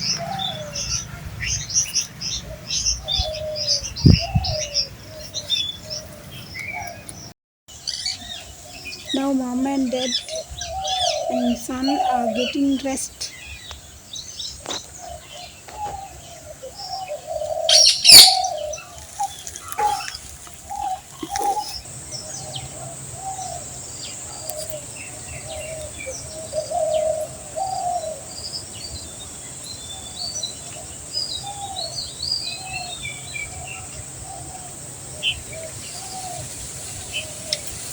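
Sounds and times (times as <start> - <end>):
short low bird calls: 15.0 - 28.2
loud sharp bird call: 16.8 - 18.9
high bird chirps: 17.7 - 21.8.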